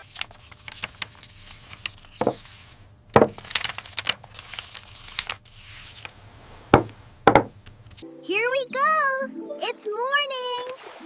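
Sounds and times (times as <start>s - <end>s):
sharp knocks and taps: 6.8s - 7.5s.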